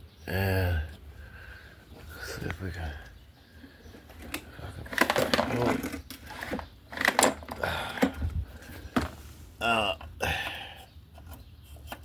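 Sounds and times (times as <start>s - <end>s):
pull-cord starter rattle: 4.1s - 9.2s.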